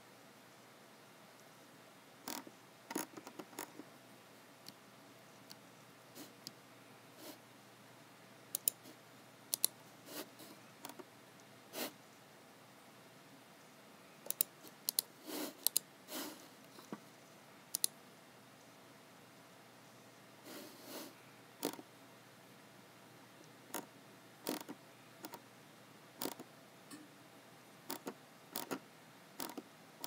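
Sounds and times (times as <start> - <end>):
mouse and keyboard clicks: 2.3 - 3.8, 8.6 - 8.9, 9.5 - 9.8, 10.8 - 11.0, 14.2 - 15.9, 17.7 - 18.0, 21.6 - 21.8, 24.5 - 25.4, 26.2 - 26.5, 27.9 - 28.8, 29.4 - 29.7.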